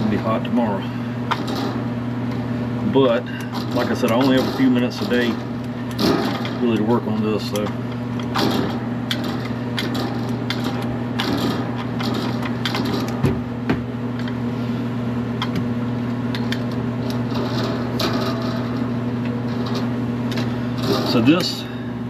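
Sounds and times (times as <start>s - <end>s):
steady low hum: 0.0s - 22.0s
hand tools clicking on metal: 3.4s - 13.2s.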